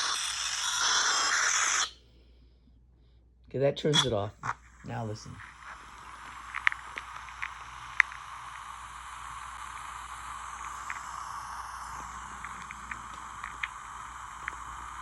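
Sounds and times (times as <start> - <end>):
steady hiss: 0.0 - 2.1, 3.8 - 15.0
sharp clicks: 4.0 - 15.0.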